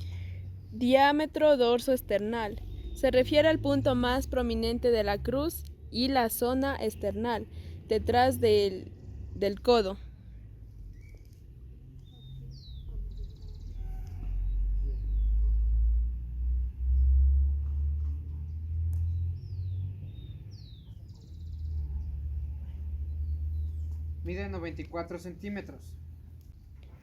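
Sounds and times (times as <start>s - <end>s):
bird chirps: 10.8s - 15.7s, 19.0s - 22.2s.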